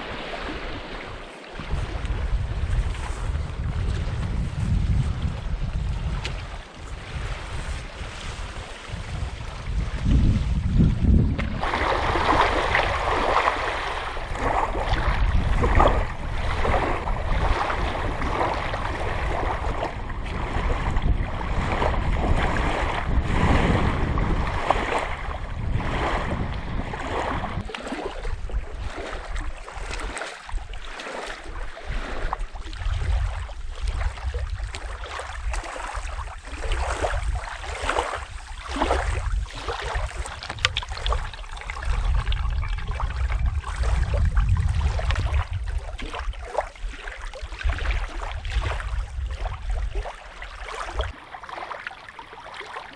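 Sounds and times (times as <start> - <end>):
water splashing and lapping: 0.0 - 52.9
wind rumbling on microphone: 0.0 - 52.9.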